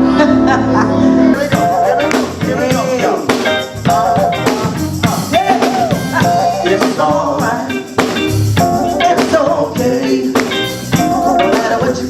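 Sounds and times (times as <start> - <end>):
melodic voice: 0.0 - 7.9, 8.6 - 12.0
upbeat gospel band: 0.0 - 12.0
drum kit beat: 1.4 - 12.0.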